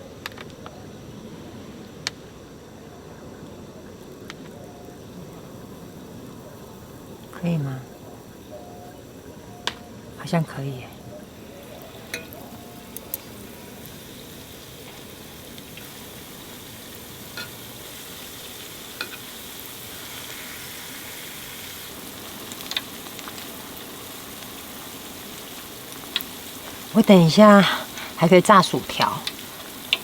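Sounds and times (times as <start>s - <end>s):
shrimp deep-frying in oil: 4.4s - 30.0s.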